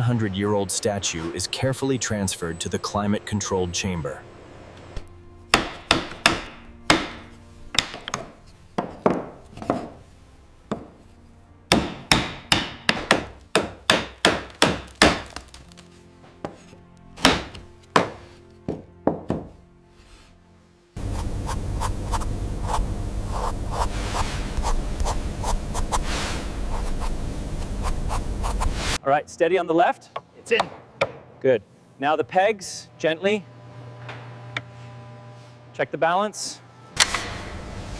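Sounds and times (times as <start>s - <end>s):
sharp knocks on wood: 5.6s - 7.2s, 10.7s - 10.9s, 11.7s - 15.2s, 17.2s - 19.6s
scraping rub against wood: 21.0s - 29.0s.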